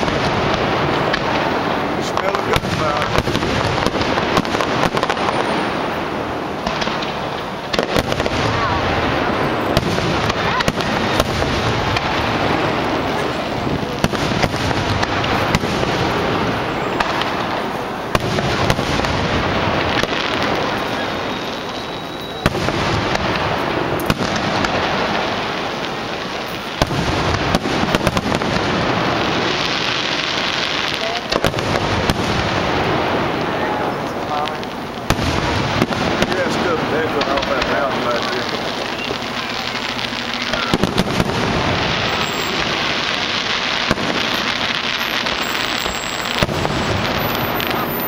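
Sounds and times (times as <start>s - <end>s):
fireworks booming and crackling: 0.0s - 48.0s.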